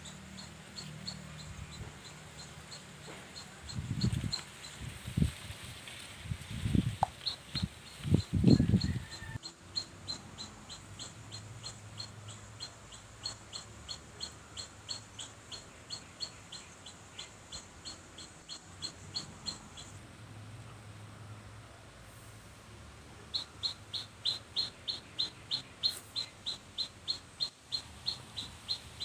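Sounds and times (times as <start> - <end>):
bird chirping: 0.0 - 5.2, 6.7 - 20.0, 23.2 - 29.0.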